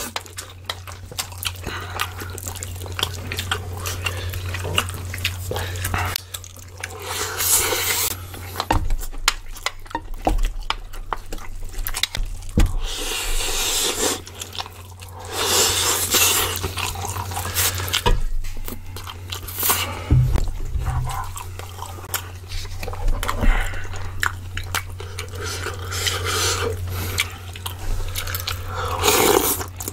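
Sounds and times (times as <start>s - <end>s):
wet chewing: 0.0s - 29.9s
low hum: 16.6s - 29.0s.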